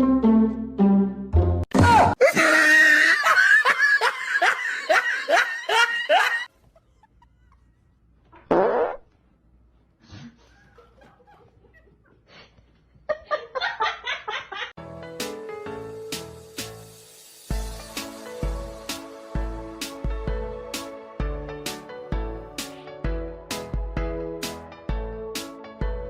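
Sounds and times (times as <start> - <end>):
person laughing hard: 2.2 - 7.8.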